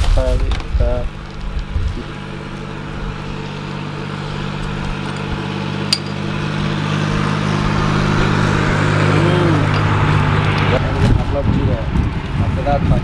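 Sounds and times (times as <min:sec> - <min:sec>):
road noise: 0:00.0 - 0:13.0
car engine hum: 0:00.5 - 0:13.0.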